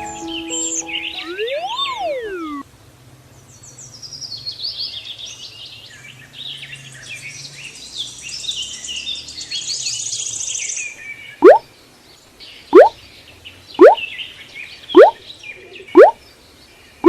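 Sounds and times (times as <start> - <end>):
small birds chirping: 7.0 - 17.0.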